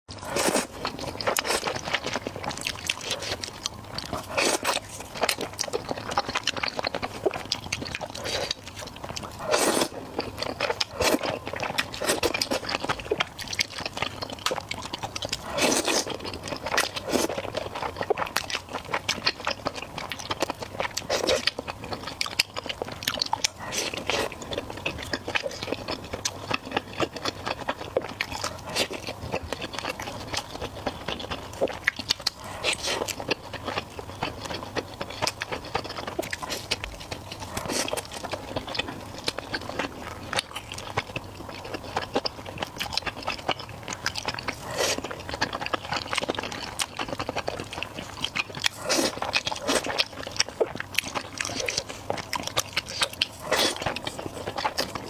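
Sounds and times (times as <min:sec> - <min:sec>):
person chewing food: 0:00.1 - 0:55.0.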